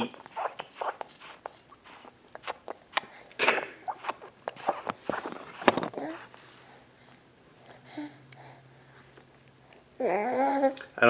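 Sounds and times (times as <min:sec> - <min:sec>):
baby mouth sounds: 0:00.0 - 0:06.3.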